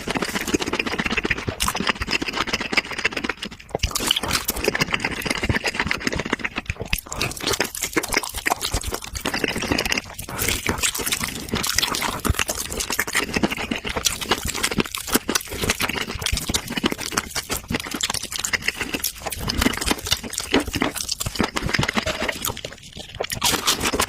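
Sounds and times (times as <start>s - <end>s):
chewing with mouth clicks: 0.0s - 24.0s
crackling bites: 0.0s - 24.0s.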